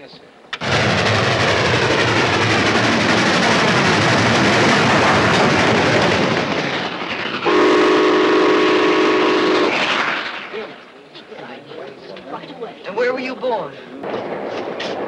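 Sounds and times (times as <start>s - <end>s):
train rushing clatter: 0.5s - 12.6s
train whistle chord: 7.5s - 9.7s.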